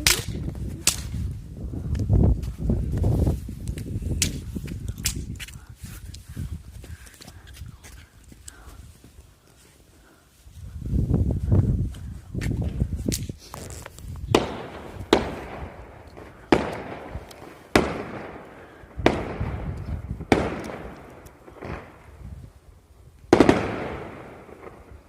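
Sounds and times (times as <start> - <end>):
fireworks exploding: 14.2 - 22.6, 23.3 - 25.0.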